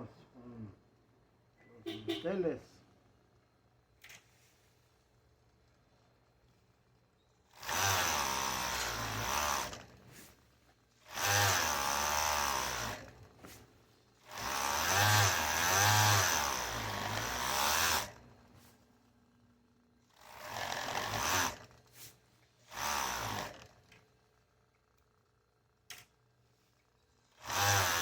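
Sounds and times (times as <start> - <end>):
electric sewing machine stitching: 7.5 - 10.0, 11.0 - 13.2, 14.2 - 18.2, 20.1 - 21.8, 22.6 - 23.9, 27.3 - 28.0.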